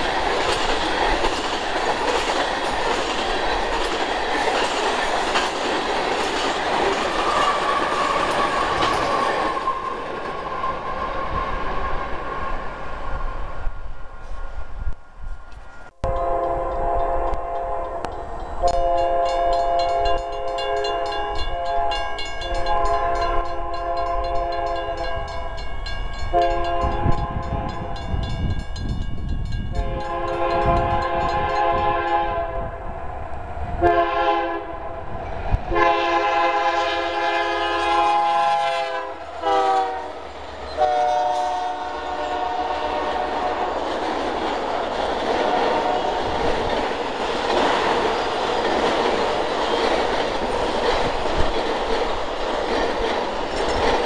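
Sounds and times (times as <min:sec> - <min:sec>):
train wheels clickety-clack on rails: 0:00.0 - 0:12.7, 0:15.4 - 0:32.6, 0:33.3 - 0:54.0
locomotive air horn blasts: 0:15.9 - 0:25.6, 0:26.3 - 0:28.1, 0:29.7 - 0:32.8, 0:33.8 - 0:35.0, 0:35.7 - 0:43.8, 0:45.4 - 0:46.3.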